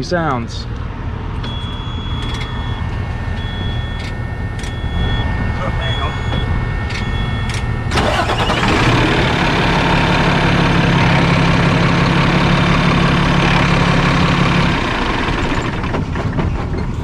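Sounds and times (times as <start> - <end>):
truck engine idling: 0.8 - 17.0.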